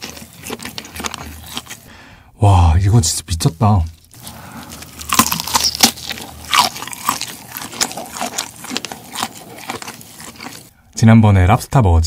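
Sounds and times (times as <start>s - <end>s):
chewing with wet mouth clicks: 0.0s - 1.9s, 3.8s - 10.8s.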